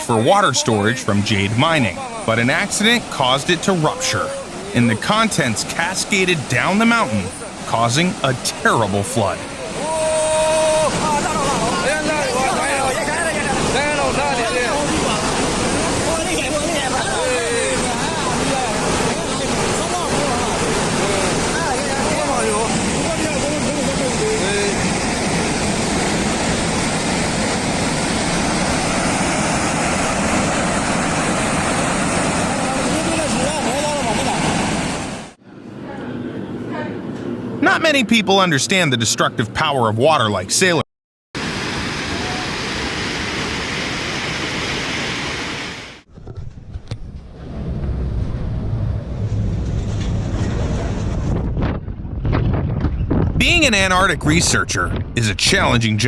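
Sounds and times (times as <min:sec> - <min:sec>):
breaking waves: 0:00.0 - 0:35.4, 0:41.4 - 0:52.3, 0:52.9 - 0:56.0
floodwater rushing: 0:00.0 - 0:35.4, 0:41.4 - 0:46.1, 0:53.4 - 0:56.0
low rumble: 0:46.1 - 0:53.8
wind buffeting microphone: 0:46.1 - 0:55.7.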